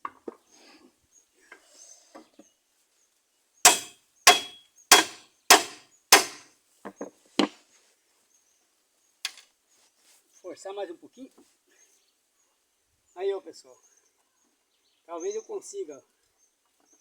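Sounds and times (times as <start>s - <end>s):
hammer striking steel plate: 3.7s - 6.5s.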